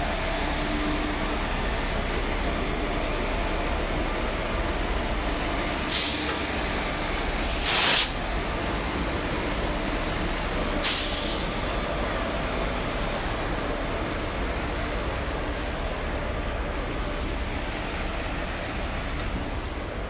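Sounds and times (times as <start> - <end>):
train rumbling: 0.0 - 20.0
air hiss: 7.4 - 8.2, 10.8 - 11.6.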